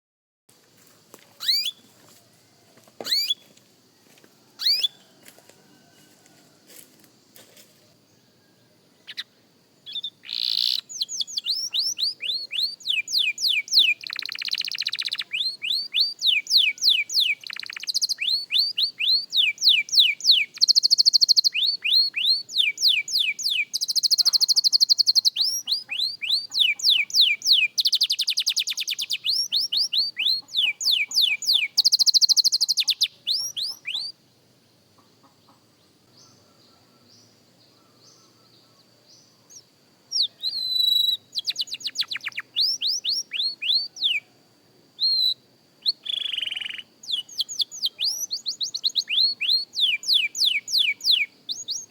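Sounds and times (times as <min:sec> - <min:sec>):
canary singing with trills: 0:01.4 - 0:01.9, 0:03.0 - 0:03.5, 0:04.6 - 0:05.1, 0:09.0 - 0:34.2, 0:39.5 - 0:44.3, 0:45.0 - 0:51.9.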